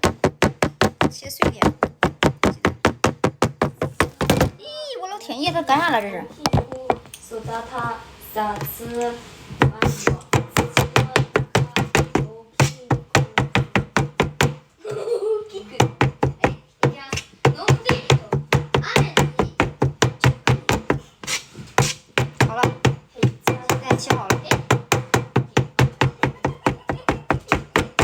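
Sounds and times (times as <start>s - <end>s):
knife chopping on cutting board: 9.6s - 14.6s, 16.9s - 28.0s.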